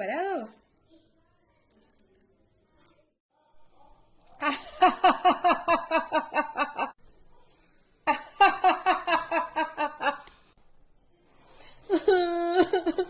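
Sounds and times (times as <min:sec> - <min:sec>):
woman laughing: 0:11.9 - 0:13.0.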